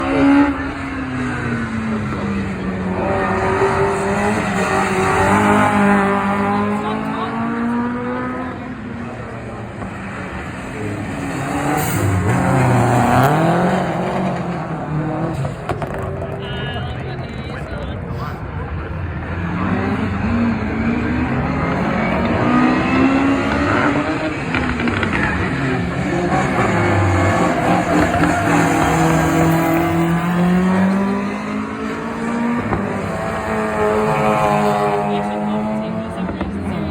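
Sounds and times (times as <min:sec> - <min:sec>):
rally car engine revving past: 0:00.0 - 0:16.4, 0:18.8 - 0:36.9.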